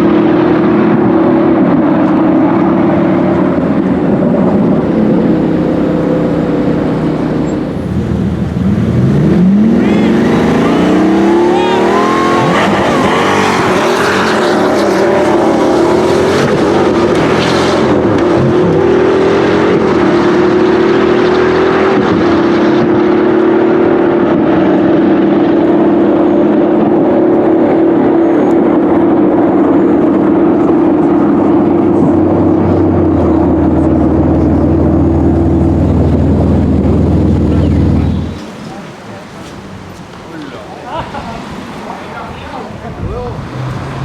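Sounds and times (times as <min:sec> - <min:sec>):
car engine under power: 0:00.0 - 0:40.3, 0:41.4 - 0:44.0.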